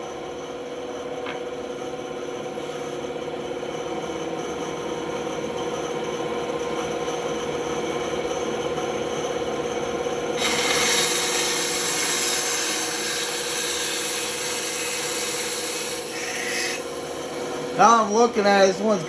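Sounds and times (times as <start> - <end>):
saw blade rasping through wood: 10.4 - 16.9
band saw humming: 10.4 - 19.0.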